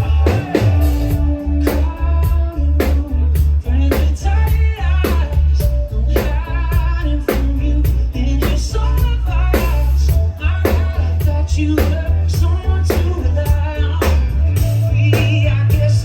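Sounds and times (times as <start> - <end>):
drum beat: 0.0 - 5.3
live band music: 0.0 - 16.0
person singing: 0.0 - 16.0.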